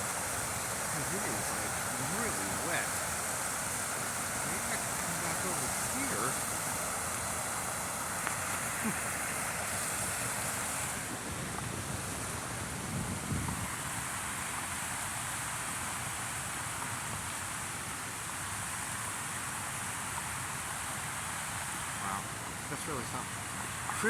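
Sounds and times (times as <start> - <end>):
rain hissing: 0.0 - 24.0
wind rumble on microphone: 10.9 - 15.8.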